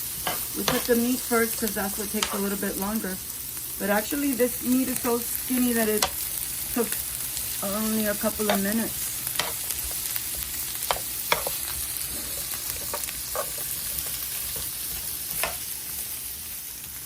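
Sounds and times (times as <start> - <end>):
vegetables sizzling on grill: 0.0 - 17.0
utensil clicking on cooking surface: 0.2 - 2.5, 6.0 - 6.2, 8.4 - 11.7, 15.3 - 15.7.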